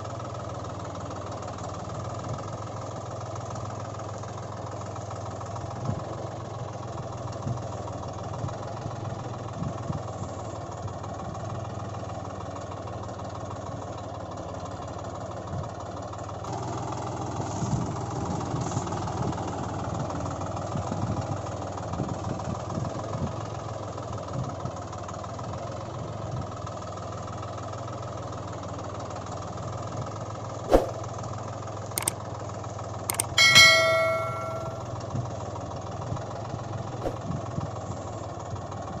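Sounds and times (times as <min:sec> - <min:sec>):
sharp clicks: 0:33.1 - 0:34.8.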